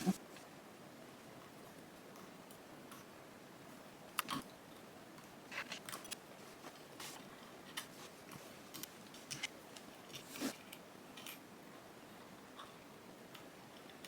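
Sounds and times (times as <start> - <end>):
faint room noise: 0.0 - 14.0
small clicks and crackles: 5.2 - 11.5.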